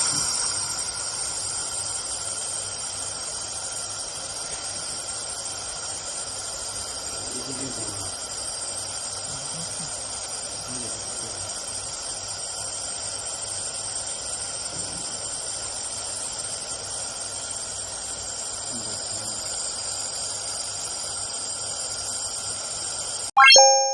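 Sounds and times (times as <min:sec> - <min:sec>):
machine hum and hiss: 0:00.0 - 0:23.3
held tones: 0:23.4 - 0:23.9.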